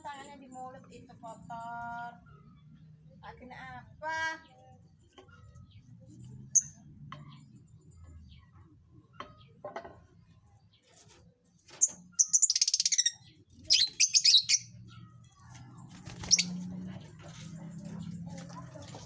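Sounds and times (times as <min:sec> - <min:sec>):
lovebirds chirping: 0:10.2 - 0:19.0.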